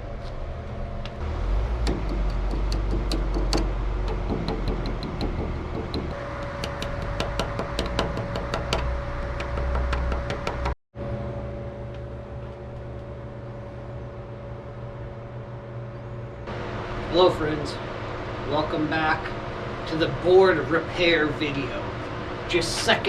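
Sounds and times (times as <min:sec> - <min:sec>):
steady mechanical hum: 0:00.0 - 0:23.0
rapid even ticking: 0:01.8 - 0:10.8.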